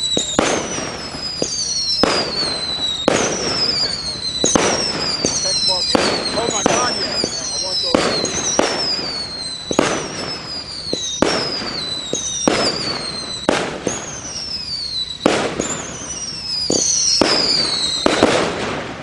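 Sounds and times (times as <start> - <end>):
firework bangs: 0.0 - 19.0
firework whistles: 0.0 - 19.0.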